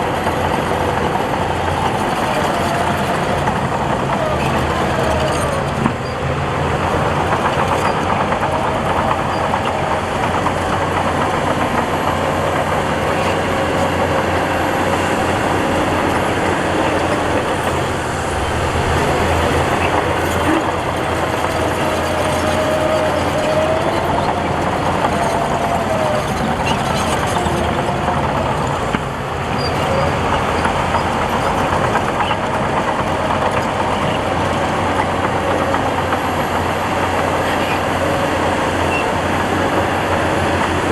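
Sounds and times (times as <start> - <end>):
diesel machinery engine drone: 0.0 - 40.9
wavering whine: 14.6 - 25.6.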